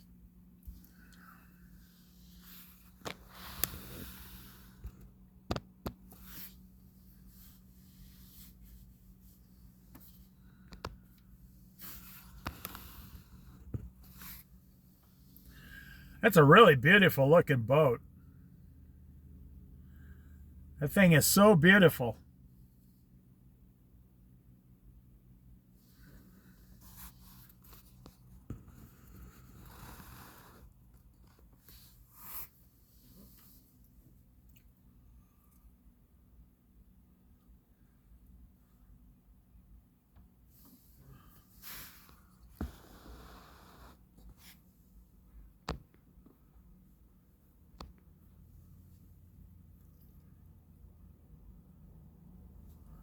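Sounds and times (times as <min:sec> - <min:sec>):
low steady hum: 0:00.0 - 0:29.7
faint rustling and scraping: 0:06.0 - 0:15.4.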